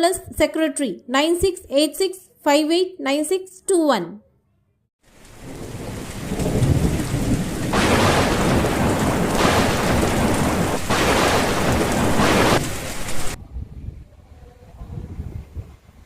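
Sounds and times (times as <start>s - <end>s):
heavy rain: 5.0s - 13.4s
rolling thunder: 5.1s - 14.0s.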